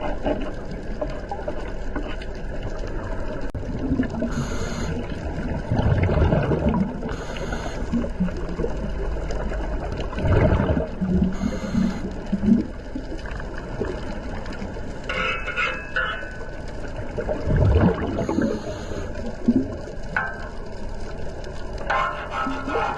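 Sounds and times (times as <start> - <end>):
underwater breathing bubbles: 3.6 - 8.9, 9.7 - 12.9, 17.1 - 19.9.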